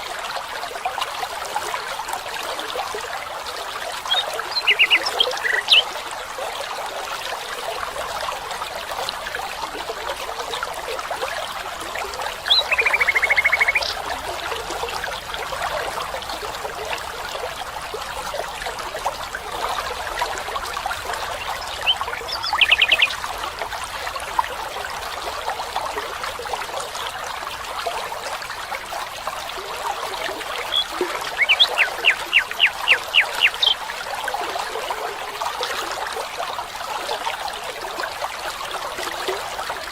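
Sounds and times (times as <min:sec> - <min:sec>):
stream trickling: 0:00.0 - 0:39.9
bird calls: 0:04.1 - 0:05.9, 0:12.4 - 0:14.1, 0:21.4 - 0:23.2, 0:30.6 - 0:33.8.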